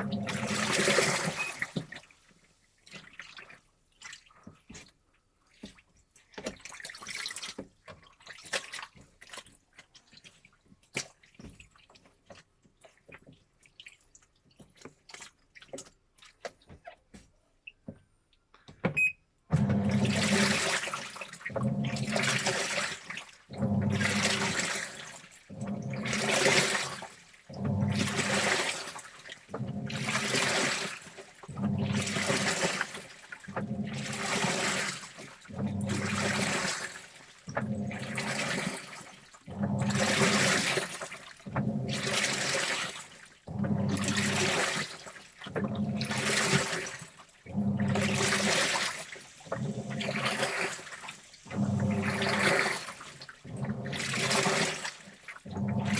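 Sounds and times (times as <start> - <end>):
water sloshing in drum: 0.0 - 18.0, 19.0 - 55.9
faint water drips: 1.4 - 18.7.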